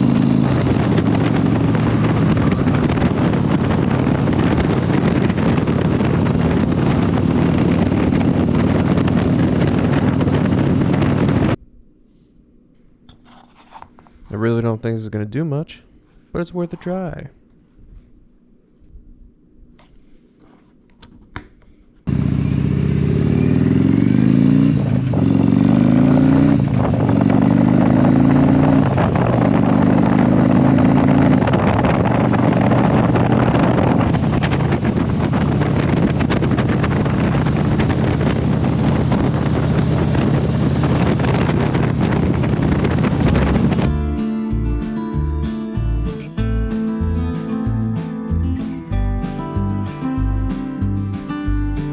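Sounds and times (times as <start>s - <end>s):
motorcycle engine accelerating: 0.0s - 11.6s, 22.1s - 51.9s
wind rushing: 0.0s - 11.6s, 24.7s - 45.1s.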